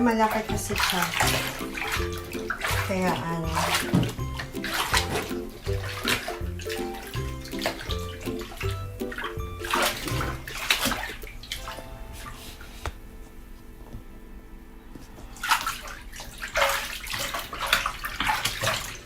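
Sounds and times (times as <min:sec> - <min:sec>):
background music with held notes: 0:00.0 - 0:13.1
water sloshing in a bathtub: 0:00.0 - 0:13.8, 0:15.0 - 0:19.0.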